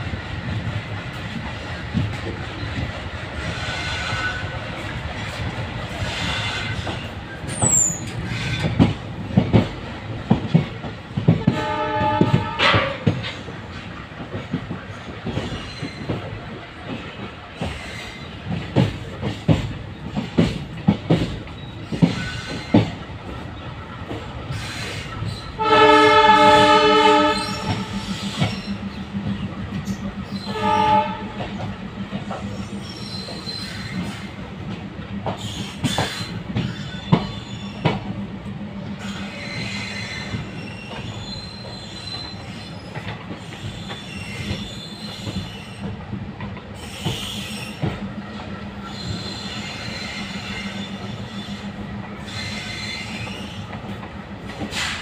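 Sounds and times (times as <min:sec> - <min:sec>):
passing train low hum: 0:00.0 - 0:55.0
train wheels clicking over rail joints: 0:00.0 - 0:55.0
loud train horn: 0:11.3 - 0:13.3, 0:25.6 - 0:28.1, 0:30.4 - 0:31.6.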